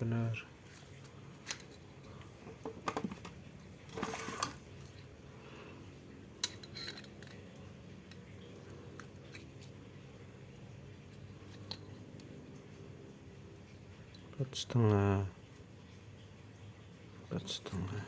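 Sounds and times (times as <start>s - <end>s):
steady low hum: 0.0s - 18.0s
metallic clicks of small parts: 1.0s - 2.3s, 6.3s - 9.9s, 11.1s - 12.3s.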